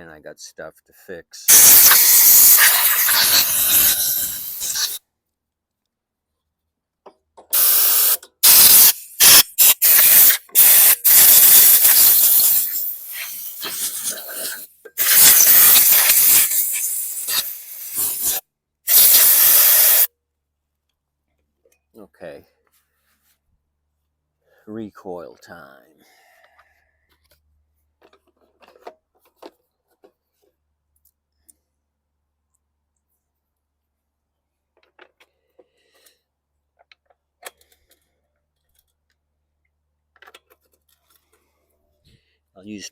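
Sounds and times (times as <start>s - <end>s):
air blowgun hissing bursts: 1.5s - 5.0s, 7.5s - 20.1s.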